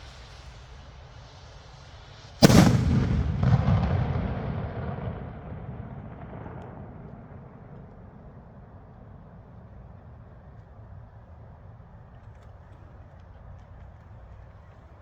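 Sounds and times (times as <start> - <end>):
firework bang: 2.4 - 8.7
rumbling echo: 2.4 - 9.5.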